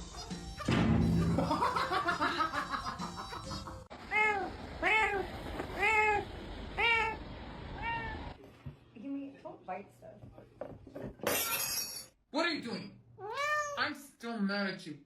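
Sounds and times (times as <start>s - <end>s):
cat meowing: 7.8s - 8.3s, 13.2s - 13.8s.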